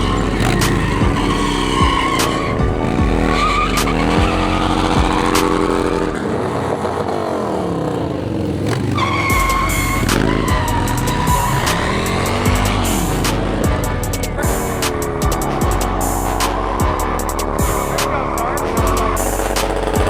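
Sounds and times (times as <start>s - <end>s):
motorcycle engine revving: 0.0s - 20.0s
tyre squealing: 0.0s - 20.0s.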